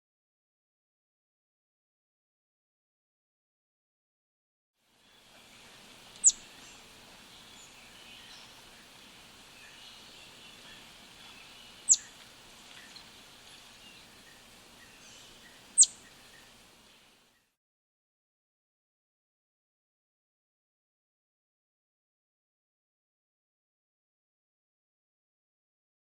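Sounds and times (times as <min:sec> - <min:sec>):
faint bird chirping: 0:04.9 - 0:17.6.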